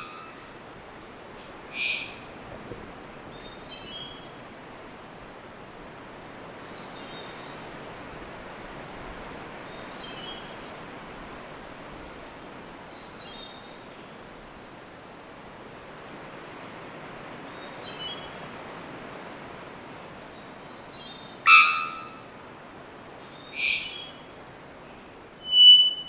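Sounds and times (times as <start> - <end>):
forest background hiss: 0.0 - 26.0
bird whistled phrases: 25.4 - 26.0.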